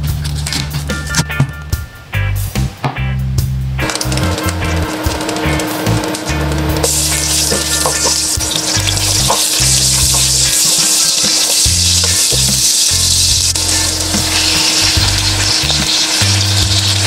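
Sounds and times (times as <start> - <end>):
food sizzling in hot oil: 6.8 - 17.0
stirring clicks: 6.8 - 17.0.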